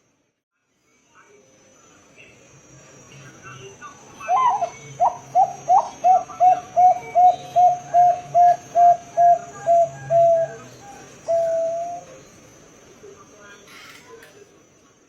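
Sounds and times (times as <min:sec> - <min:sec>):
dove cooing: 0:04.3 - 0:12.2.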